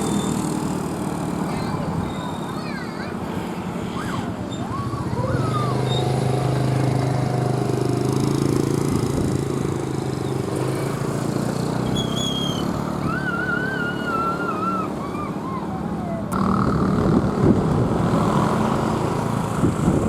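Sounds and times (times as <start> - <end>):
engine humming: 0.0 - 20.0
high wavering whistle-like tones: 11.8 - 16.3.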